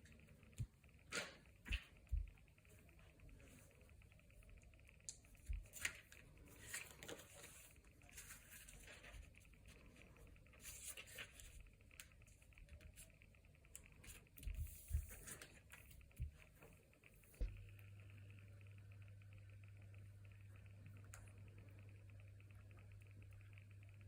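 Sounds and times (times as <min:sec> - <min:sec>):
paper rustling and crinkling: 0:05.5 - 0:10.0, 0:10.6 - 0:11.6.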